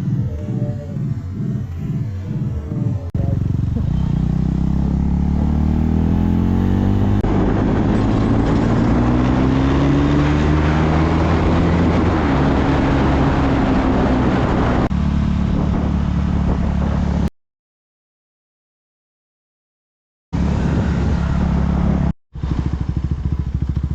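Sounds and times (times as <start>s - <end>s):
motorcycle engine accelerating: 0.0s - 17.3s, 20.4s - 23.9s
wind noise: 2.1s - 17.3s, 20.4s - 23.4s.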